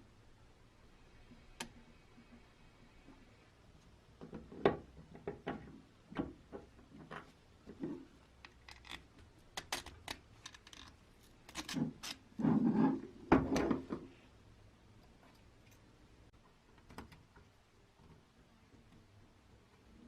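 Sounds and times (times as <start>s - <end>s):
small hard parts clicking: 8.4s - 12.2s.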